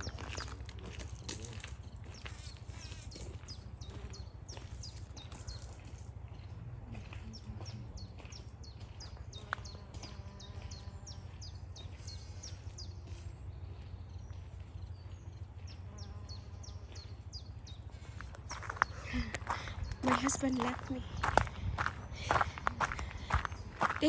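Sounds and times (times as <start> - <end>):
steady low rumble: 0.0 - 9.4, 10.9 - 24.0
small birds chirping: 0.0 - 24.0.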